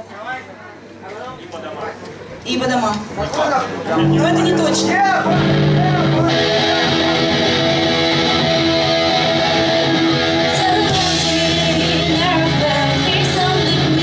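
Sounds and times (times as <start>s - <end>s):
person singing: 4.0s - 8.3s, 9.2s - 14.0s
electric guitar chord: 4.0s - 14.0s
rock band playing: 4.0s - 14.0s
drums with cymbal crashes: 10.8s - 14.0s.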